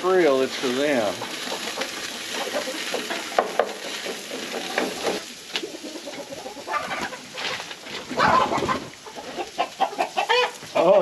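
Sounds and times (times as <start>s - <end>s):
meat sizzling on a grill: 0.0s - 11.0s
chickens clucking: 0.1s - 11.0s.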